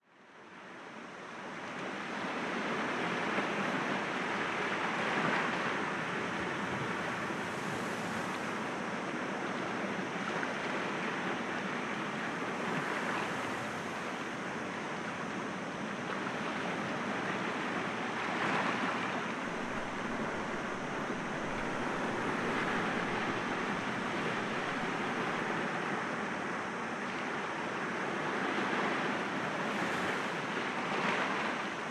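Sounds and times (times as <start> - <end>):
waves breaking against rocks: 4.8 - 8.9, 18.2 - 25.8, 28.7 - 31.9.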